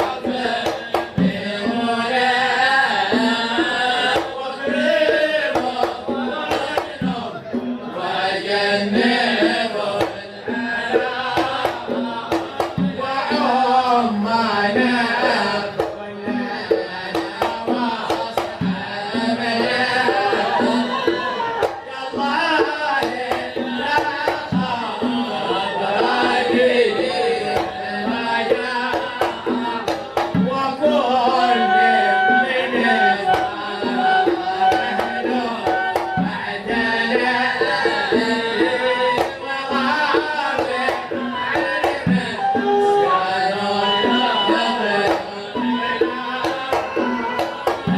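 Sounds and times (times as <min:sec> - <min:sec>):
person singing melodic chant: 0:00.0 - 0:47.9
hand drum strokes: 0:14.9 - 0:47.9.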